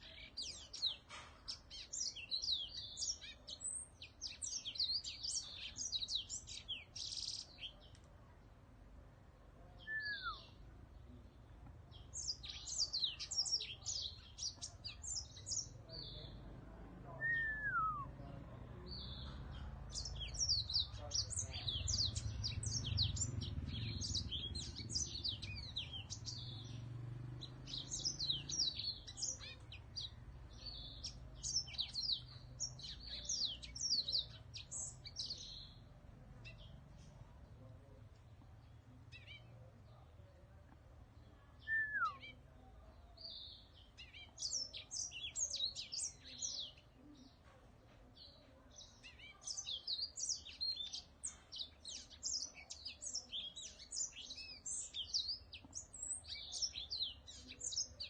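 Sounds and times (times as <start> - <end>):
songbird singing chirps and trills: 0.0 - 58.0
slurred falling whistles: 17.2 - 18.1, 41.7 - 42.2.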